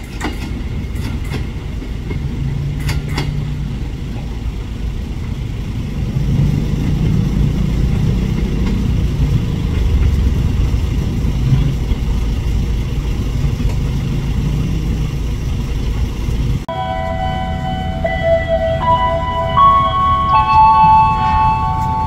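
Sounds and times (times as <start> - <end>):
train rumble: 0.0 - 22.0
chime-like tones: 16.7 - 22.0.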